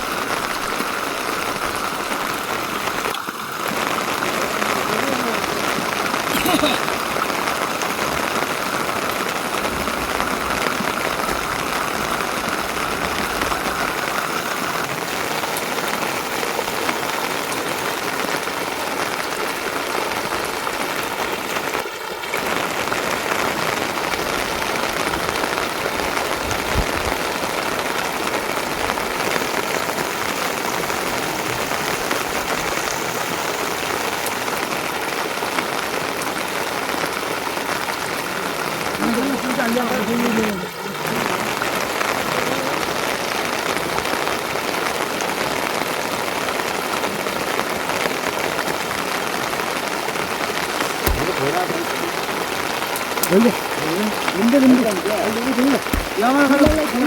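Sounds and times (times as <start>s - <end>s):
rain falling: 0.0s - 57.0s.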